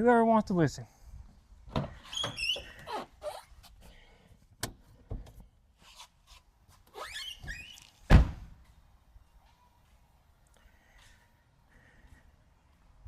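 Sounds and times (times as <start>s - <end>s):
brief squeak: 2.0s - 3.5s, 7.0s - 7.9s.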